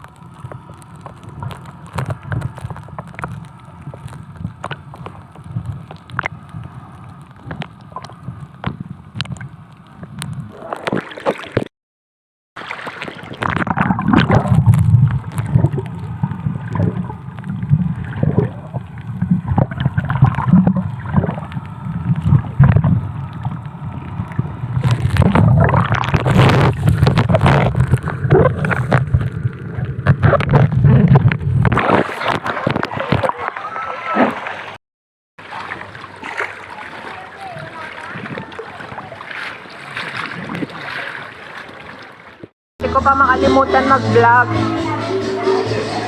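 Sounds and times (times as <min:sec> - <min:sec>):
muffled churning water: 0:00.0 - 0:11.7, 0:12.6 - 0:34.8, 0:35.4 - 0:46.0
wind buffeting microphone: 0:37.4 - 0:41.0.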